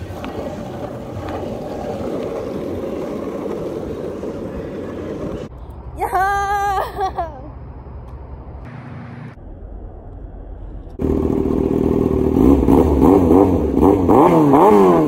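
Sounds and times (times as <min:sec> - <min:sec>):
motorcycle engine revving: 0:11.0 - 0:15.0.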